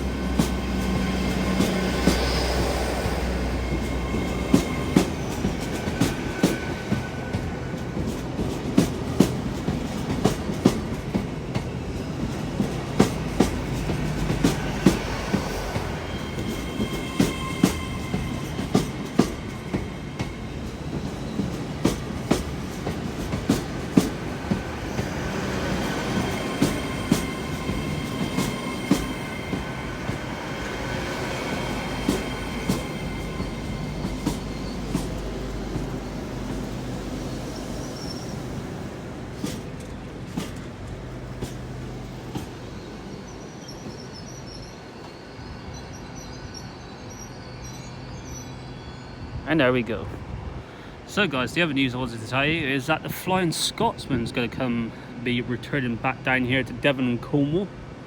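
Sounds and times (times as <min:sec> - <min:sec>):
high wheel squeal: 0:00.0 - 0:08.4, 0:13.2 - 0:40.7, 0:41.4 - 0:49.8
train wheels clacking over joints: 0:00.0 - 0:42.9
low train rumble: 0:00.0 - 0:58.0.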